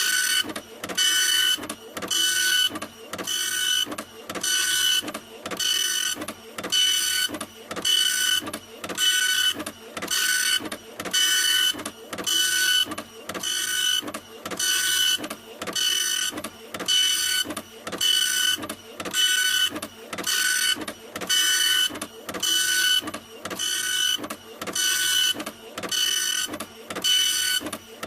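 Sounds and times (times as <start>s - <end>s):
printer whirring: 0.0s - 28.0s.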